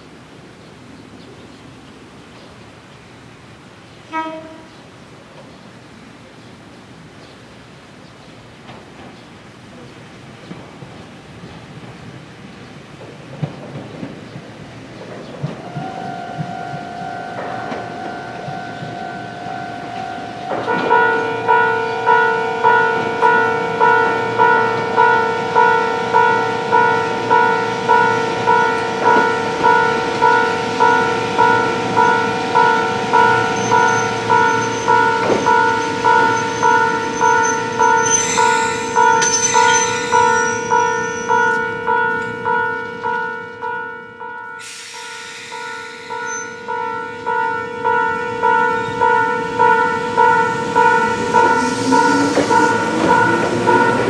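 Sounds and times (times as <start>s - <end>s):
train whine: 8.6s - 54.0s
train wheels clicking over rail joints: 12.9s - 43.2s, 50.4s - 54.0s
level-crossing alarm clanging: 15.4s - 54.0s.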